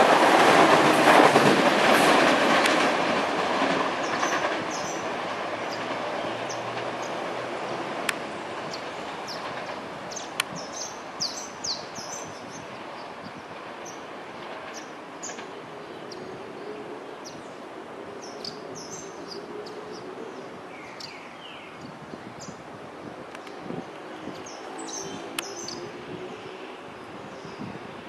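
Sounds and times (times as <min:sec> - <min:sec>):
electric train rolling along track: 0:00.0 - 0:28.0
birds chirping: 0:03.9 - 0:07.3, 0:08.3 - 0:17.6, 0:18.2 - 0:22.6, 0:23.4 - 0:26.7.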